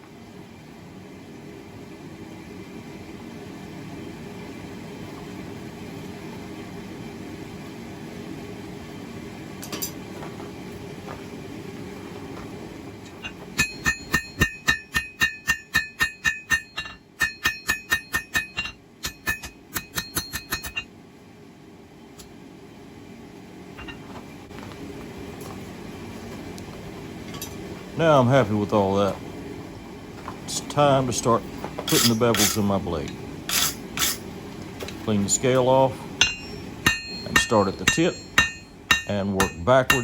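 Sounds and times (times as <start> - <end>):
steady low hum: 0.0 - 40.0
hammer ringing on anvil: 13.2 - 20.9, 31.9 - 32.7, 36.2 - 40.0.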